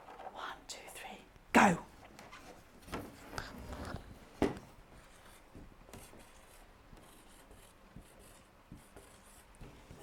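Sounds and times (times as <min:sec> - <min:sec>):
marker pen rubbing on whiteboard: 0:05.0 - 0:10.0.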